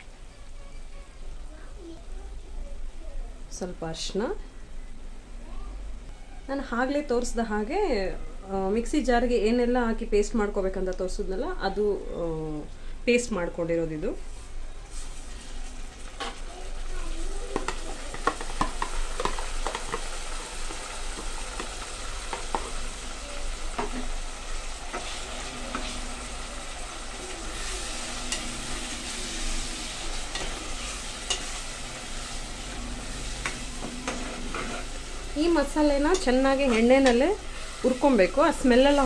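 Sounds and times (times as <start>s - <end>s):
paste sizzling in hot oil: 14.9s - 39.0s
steel spoon scraping and clinking: 30.2s - 31.6s.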